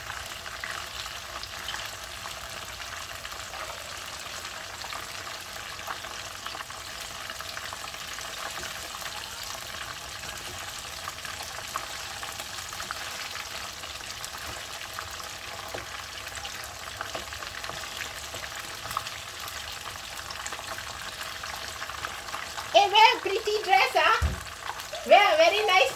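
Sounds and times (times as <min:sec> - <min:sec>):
chicken frying in hot oil: 0:00.0 - 0:25.9.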